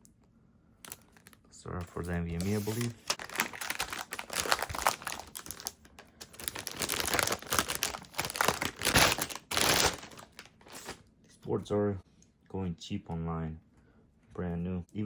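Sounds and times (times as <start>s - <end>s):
packaging crinkling and rustling: 0.8s - 11.0s.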